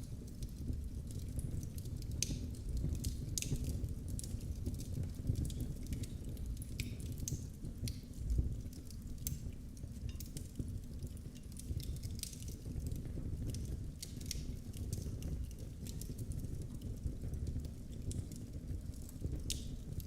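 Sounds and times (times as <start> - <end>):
flames rumbling: 0.0 - 20.0
wood fire pops and snaps: 0.0 - 20.0.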